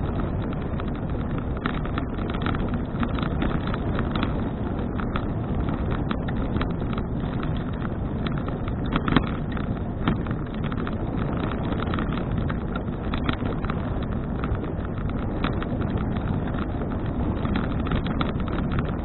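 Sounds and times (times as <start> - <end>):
rattles and knocks from bumps: 0.0 - 19.0
tyre and road noise: 0.0 - 19.0
wind buffeting microphone: 0.0 - 19.0.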